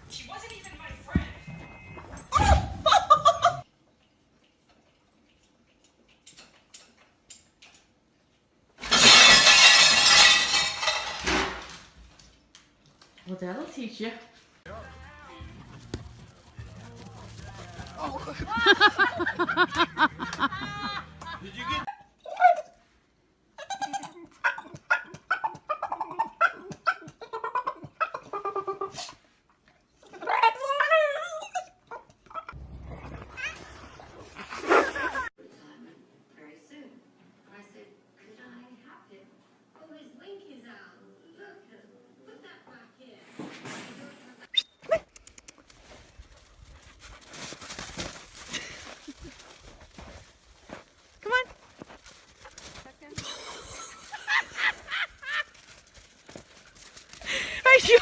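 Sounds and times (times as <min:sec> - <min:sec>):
loud shattering crash: 0:08.8 - 0:11.8.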